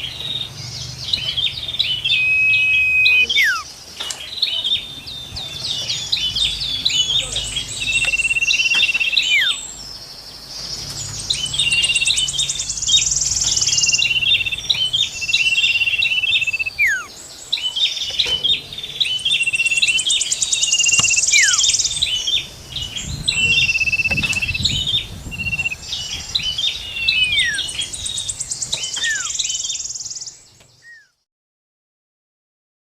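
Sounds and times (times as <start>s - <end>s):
short bird chips: 0.0s - 22.4s, 25.5s - 31.1s
high buzzy bird trill: 0.0s - 31.2s
steady high bird whistle: 1.2s - 18.3s, 19.0s - 31.2s
falling bird whistles: 2.1s - 3.7s, 16.4s - 17.1s, 20.6s - 21.8s, 28.8s - 29.4s, 30.8s - 31.2s.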